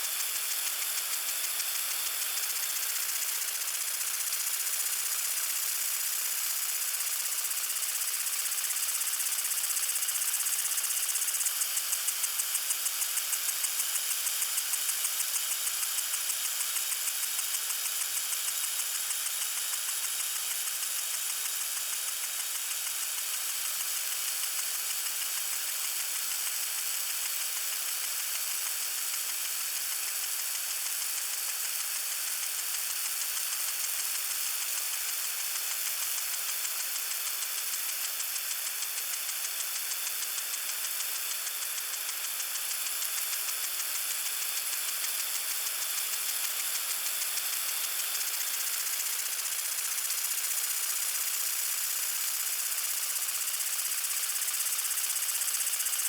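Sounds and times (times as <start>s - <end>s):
lawn sprinkler spraying: 0.0s - 56.0s.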